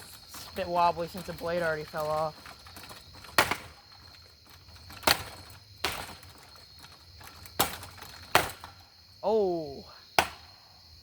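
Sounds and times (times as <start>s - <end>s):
sharp knocks on fan blades: 5.0s - 6.4s, 7.6s - 8.8s.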